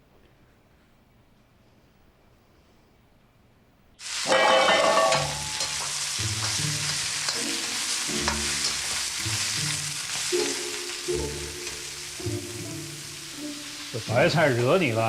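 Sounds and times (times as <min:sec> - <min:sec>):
food sizzling in frying: 0:04.0 - 0:15.0
soft background music: 0:05.2 - 0:15.0.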